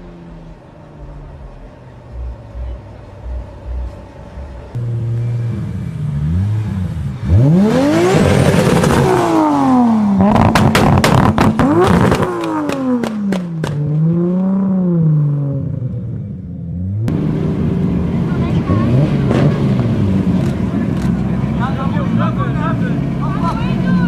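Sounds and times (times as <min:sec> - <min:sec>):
car engine revving: 0:00.0 - 0:24.0
exhaust pops and crackles: 0:10.2 - 0:14.0, 0:19.2 - 0:21.4.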